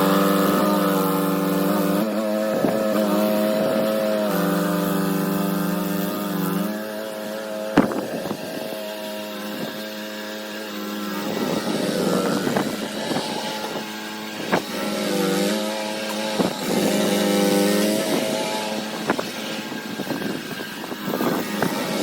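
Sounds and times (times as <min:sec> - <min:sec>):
engine running: 0:00.0 - 0:22.0
sharp knocks: 0:07.8 - 0:08.4.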